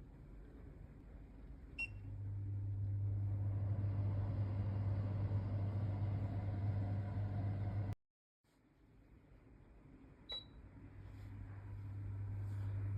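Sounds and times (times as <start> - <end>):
range hood extractor fan humming: 1.4 - 8.0, 10.9 - 12.9.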